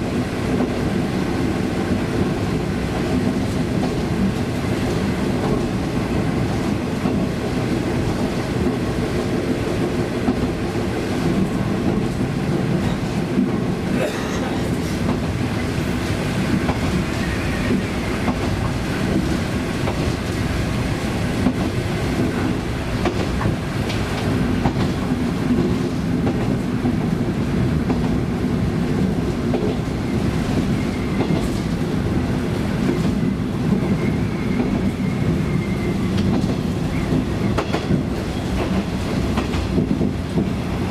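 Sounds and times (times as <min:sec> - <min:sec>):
train wheels clacking over rail joints: 0:16.0 - 0:27.1, 0:30.5 - 0:31.8, 0:32.8 - 0:40.8.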